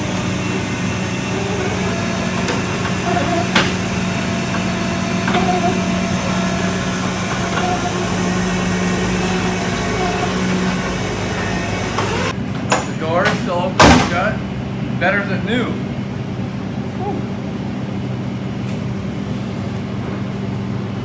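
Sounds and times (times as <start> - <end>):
tow truck engine idling: 0.0 - 12.9
sharp clicks and knocks: 0.0 - 14.0.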